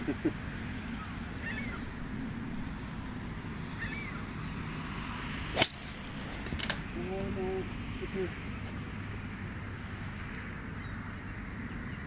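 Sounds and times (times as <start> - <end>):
golf club striking ball: 5.5 - 6.9.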